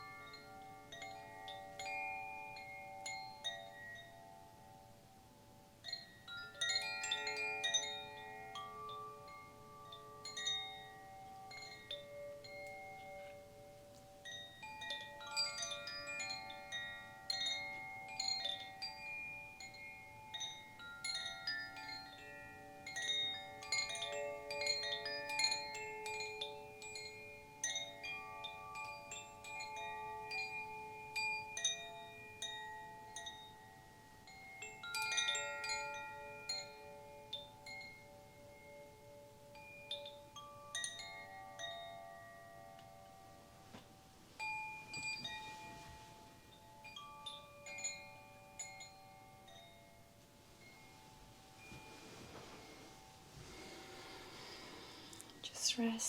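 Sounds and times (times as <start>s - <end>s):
chimes ringing: 44.4s - 56.0s.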